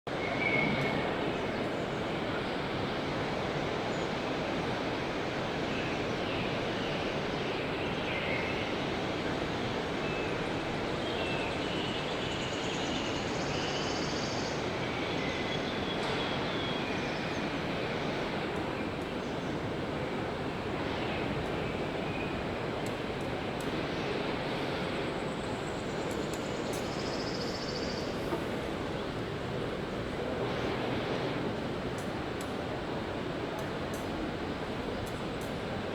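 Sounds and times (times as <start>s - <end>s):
busy hall background noise: 0.1s - 35.9s.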